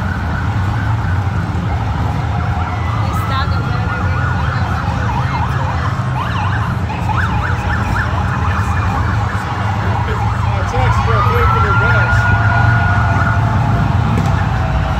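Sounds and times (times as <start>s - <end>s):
motorcycle engines rumbling: 0.0s - 14.9s
police sirens yelping: 0.0s - 14.9s
siren rising wail: 0.0s - 14.9s.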